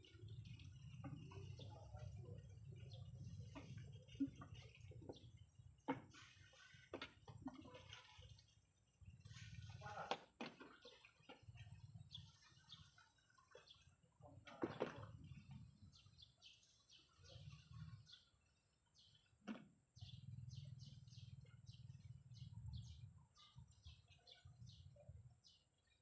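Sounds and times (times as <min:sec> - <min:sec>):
small bird chirping: 0:20.0 - 0:26.0.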